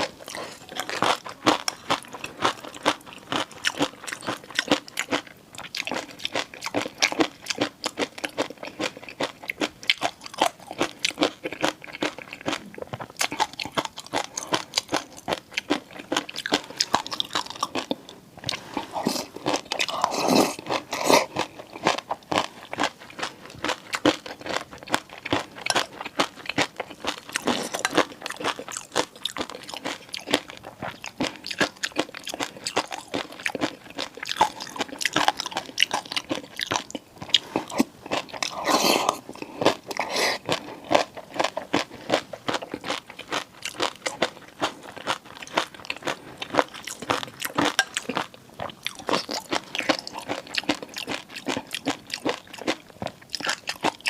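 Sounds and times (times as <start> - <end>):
crunching and chewing: 0.0 - 54.0.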